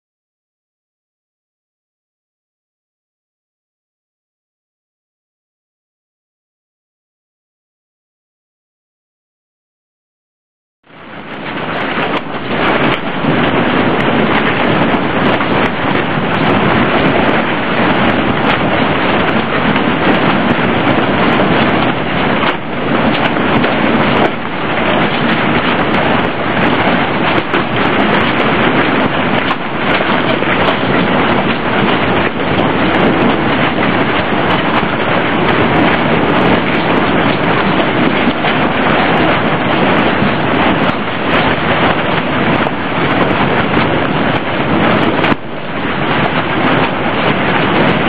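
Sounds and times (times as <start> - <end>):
storm wind rushing: 10.9 - 48.0.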